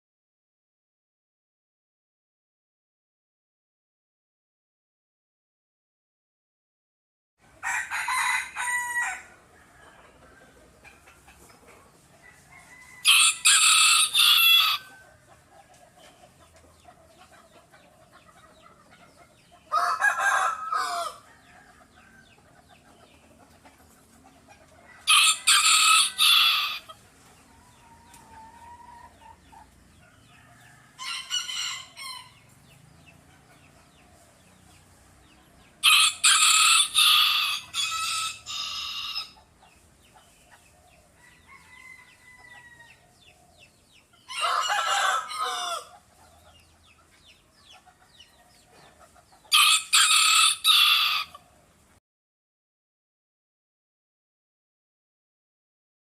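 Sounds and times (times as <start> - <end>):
faint background noise: 7.4 - 52.0
rooster crowing: 7.6 - 10.2, 12.2 - 15.0, 19.7 - 22.4, 24.8 - 26.9, 30.2 - 32.4, 35.8 - 39.4, 41.2 - 43.1, 44.3 - 46.0, 49.5 - 51.4.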